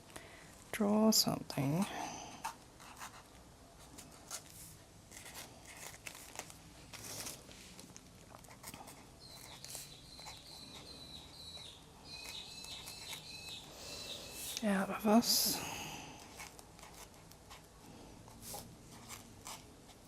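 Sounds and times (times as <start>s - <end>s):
pen scratching on paper: 2.4s - 6.0s, 8.5s - 13.7s, 16.1s - 20.0s.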